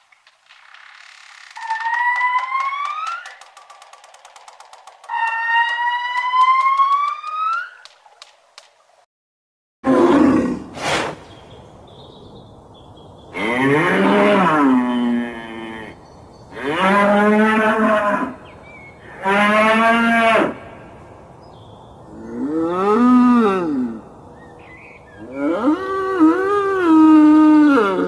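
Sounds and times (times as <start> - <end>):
brief sharp sounds: 10.8 - 11.3
cattle mooing: 13.4 - 16.0.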